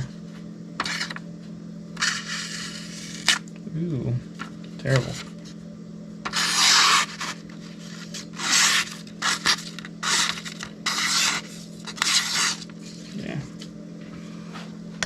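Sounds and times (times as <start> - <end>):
steady low hum: 0.0 - 15.0
knife blade scraping on whetstone: 6.3 - 13.0.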